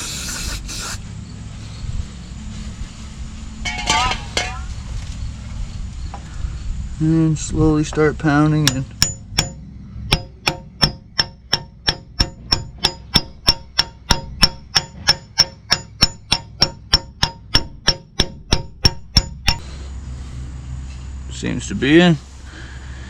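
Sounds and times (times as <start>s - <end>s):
hammer blows on metal: 8.5s - 19.8s.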